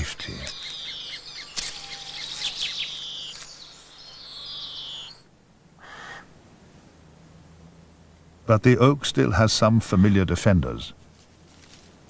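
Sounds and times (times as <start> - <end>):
birds chirping and whistling: 0.0 - 5.3.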